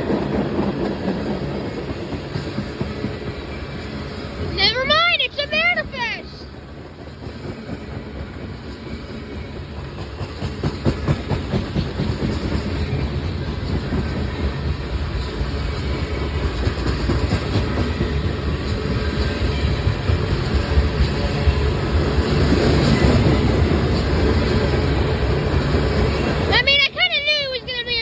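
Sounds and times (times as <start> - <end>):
freight train rumbling: 0.0 - 28.0
wheels clacking over rail joints: 6.6 - 26.7.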